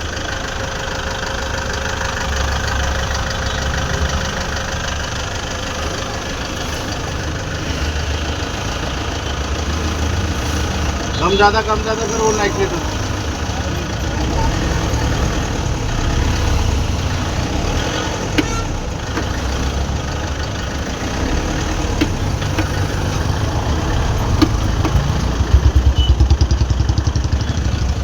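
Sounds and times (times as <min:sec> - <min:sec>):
car engine idling: 0:00.0 - 0:28.0
engine pulsing knock: 0:13.8 - 0:28.0
sharp clicks: 0:17.1 - 0:19.8, 0:21.7 - 0:27.1.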